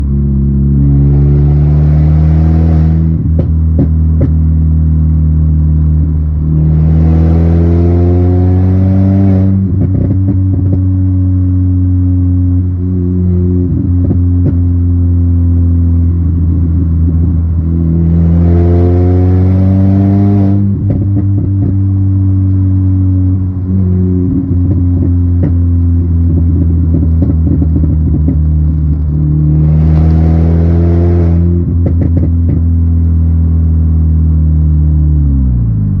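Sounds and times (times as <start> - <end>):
car engine idling and revving: 0.0 - 36.0
exhaust pops and crackles: 3.2 - 4.6, 9.6 - 11.0, 13.7 - 14.9, 20.6 - 22.6, 24.2 - 29.7, 31.4 - 33.0.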